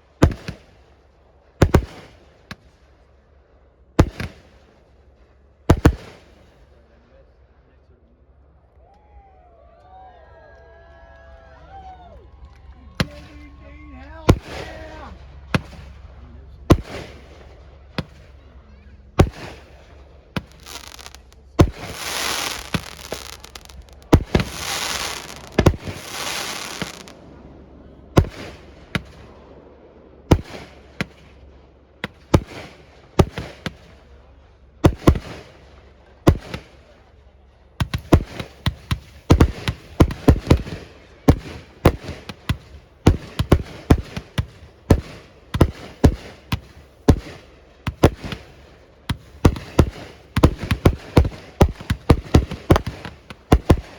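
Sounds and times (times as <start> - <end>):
firework shells bursting with bangs: 0.0 - 0.8, 1.6 - 2.7, 4.0 - 4.7, 5.7 - 6.5, 14.3 - 15.0, 15.6 - 16.1, 16.7 - 18.4, 19.2 - 27.2, 28.2 - 29.4, 30.3 - 31.4, 32.0 - 34.2, 34.9 - 37.2, 37.8 - 53.9
fireworks hissing and crackling: 0.0 - 0.9, 1.6 - 3.0, 4.0 - 4.9, 5.7 - 6.8, 14.3 - 18.4, 19.2 - 27.2, 28.2 - 29.4, 30.3 - 34.2, 34.9 - 37.2, 37.8 - 53.9.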